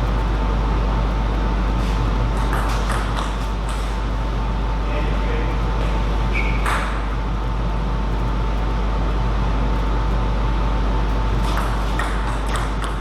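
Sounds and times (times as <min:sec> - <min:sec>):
hall hum and hiss: 0:00.0 - 0:13.0
table tennis ball clicks: 0:11.4 - 0:13.0.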